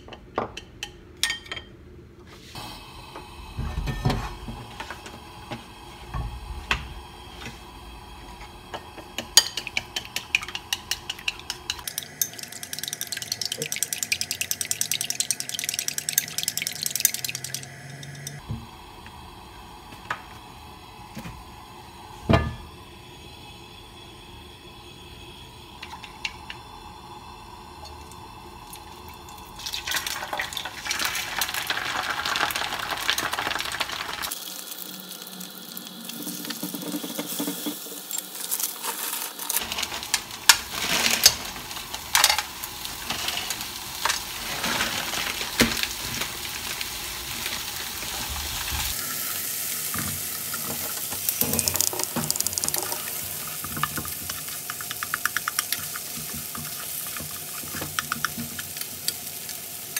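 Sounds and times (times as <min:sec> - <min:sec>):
egg sizzling in frying pan: 0:02.6 - 0:23.3, 0:25.6 - 0:59.9
wooden utensil scraping pan: 0:38.8 - 0:46.3.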